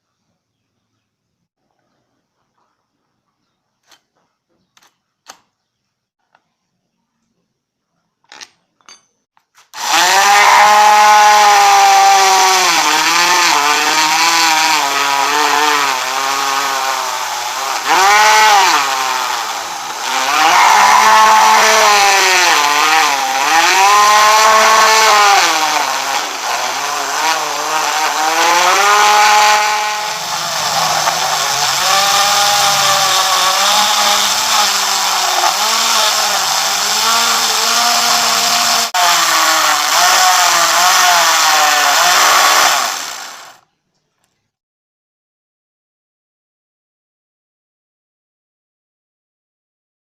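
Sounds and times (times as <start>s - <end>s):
electric tool cutting wood: 9.6s - 43.6s.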